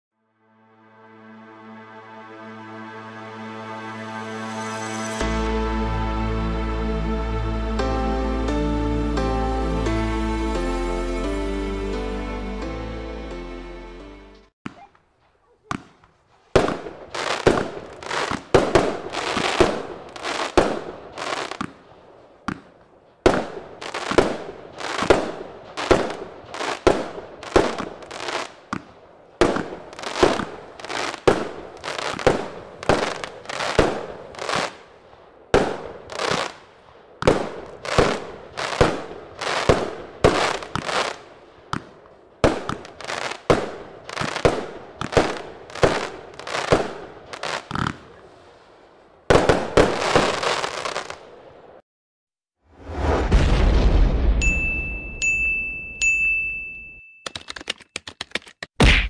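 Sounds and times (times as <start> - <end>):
sharp echoing bangs: 14.7 - 48.1.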